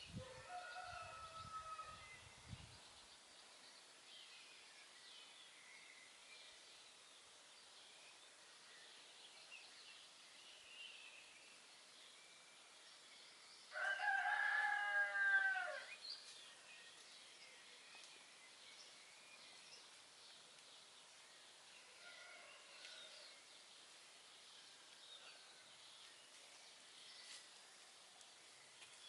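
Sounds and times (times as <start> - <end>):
faint songbird chirps: 0.0 - 29.0
rooster crowing: 0.2 - 2.0, 13.7 - 15.9.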